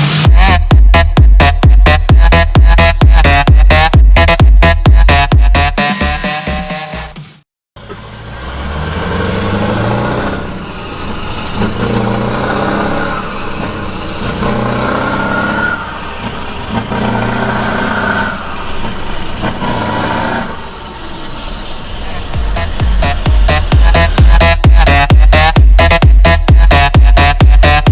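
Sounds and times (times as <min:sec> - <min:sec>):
truck diesel engine running: 0:07.8 - 0:27.9.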